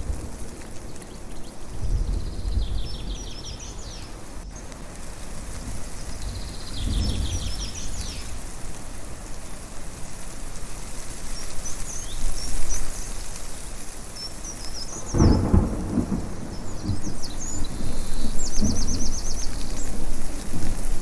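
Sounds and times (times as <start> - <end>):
thunder rumble: 0.0 - 8.7, 14.8 - 21.0
birds chirping: 0.7 - 4.8, 14.0 - 21.0.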